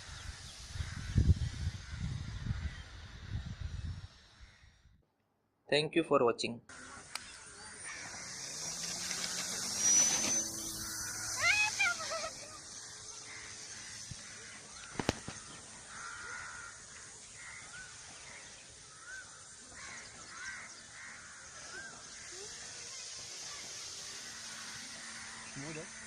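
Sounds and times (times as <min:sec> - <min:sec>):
bird wavering call: 0:06.7 - 0:26.0
faint bird chirps: 0:06.7 - 0:26.0
sharp click: 0:14.8 - 0:15.4.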